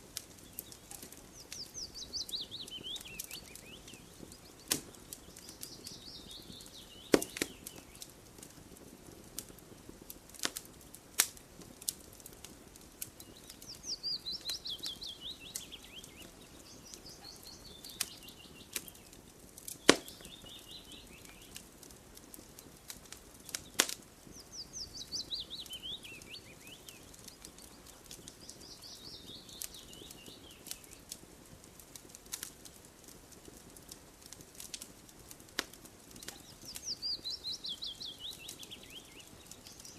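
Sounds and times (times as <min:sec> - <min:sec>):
songbird singing: 0:00.0 - 0:08.2, 0:13.0 - 0:31.2, 0:36.0 - 0:39.9
burning wood popping: 0:00.0 - 0:39.9
campfire crackling: 0:00.0 - 0:39.9.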